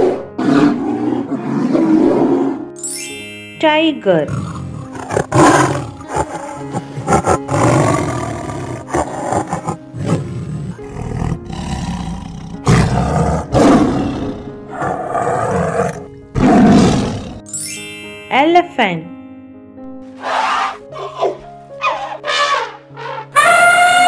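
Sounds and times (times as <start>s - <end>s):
tiger roaring: 0.0s - 2.7s, 4.3s - 17.4s.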